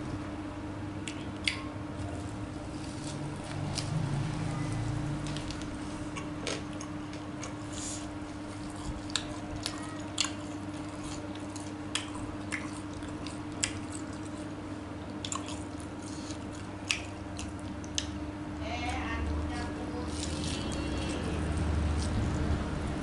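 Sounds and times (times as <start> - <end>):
steady low hum: 0.0 - 23.0
person chewing with wet smacks: 1.0 - 4.1, 5.2 - 18.2.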